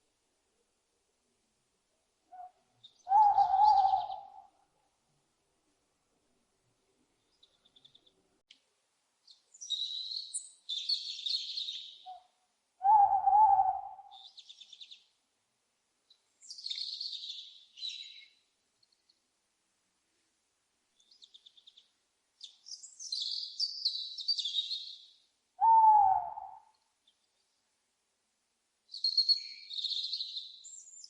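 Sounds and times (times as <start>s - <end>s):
owl hooting: 2.3s - 4.6s, 11.4s - 14.4s, 25.6s - 26.7s
small birds chirping: 7.1s - 8.5s, 9.2s - 15.2s, 16.0s - 19.2s, 20.9s - 27.6s, 28.9s - 31.0s.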